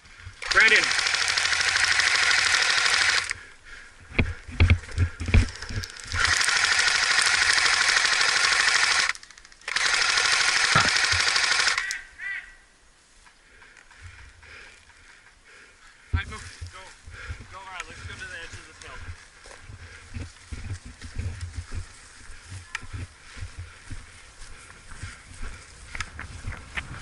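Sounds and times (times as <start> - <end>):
airsoft gun full-auto bursts: 0.4 - 3.5, 5.1 - 12.0.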